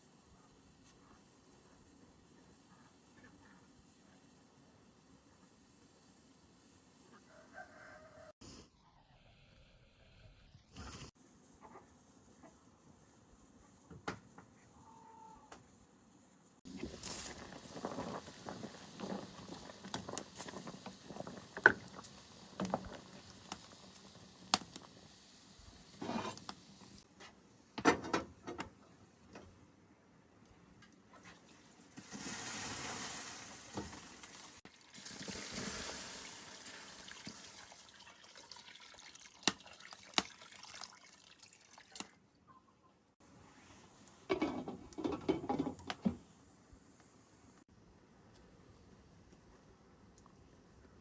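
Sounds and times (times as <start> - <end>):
liquid being poured: 31.2 - 42.2.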